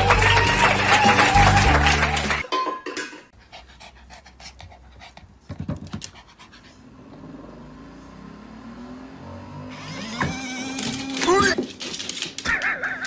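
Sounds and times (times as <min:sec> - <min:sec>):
dog panting: 0:03.4 - 0:07.1.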